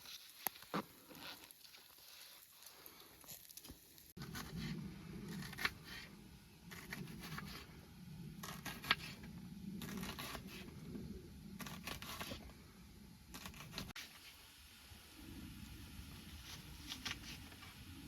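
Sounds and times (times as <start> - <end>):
scraping and rustling strokes: 8.4 - 10.8, 11.6 - 12.6, 16.2 - 18.0.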